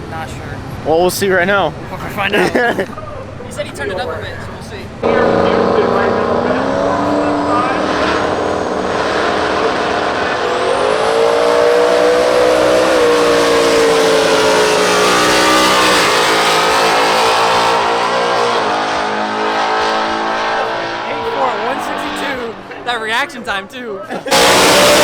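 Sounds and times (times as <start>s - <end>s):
drag race car engine: 3.9s - 22.8s, 24.3s - 25.0s.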